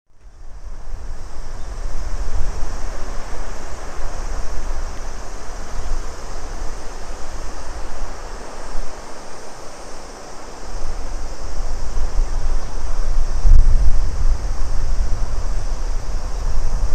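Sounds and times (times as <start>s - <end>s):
cicadas chorus: 0.1s - 16.9s
wind buffeting microphone: 0.1s - 16.9s
river water rushing: 1.2s - 16.9s.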